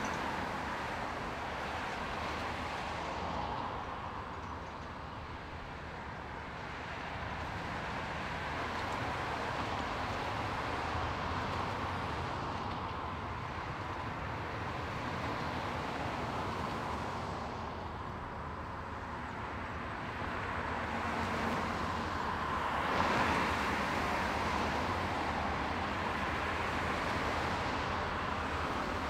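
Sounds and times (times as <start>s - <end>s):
rail noise: 0.0s - 29.0s.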